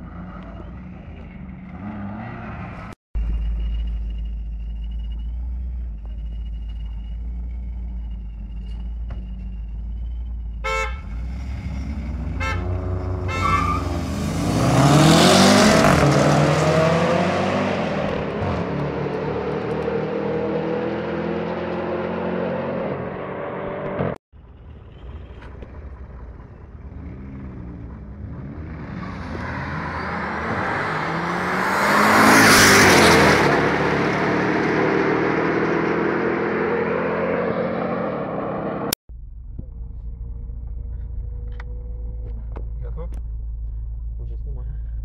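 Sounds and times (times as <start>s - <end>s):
engine idle rumble: 3.2s - 10.6s, 24.4s - 28.2s, 39.1s - 45.0s
car engine at full throttle passing: 11.1s - 24.2s, 26.8s - 39.0s.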